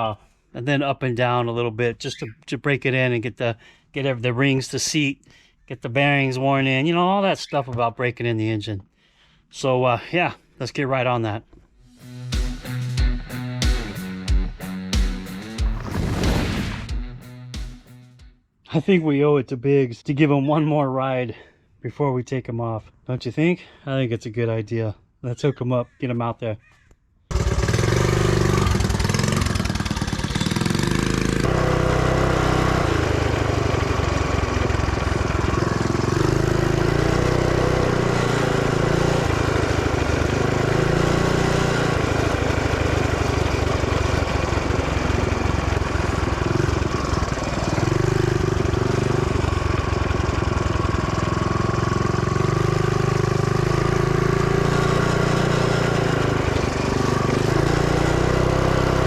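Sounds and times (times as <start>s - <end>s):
mini bike engine revving: 27.3s - 59.0s.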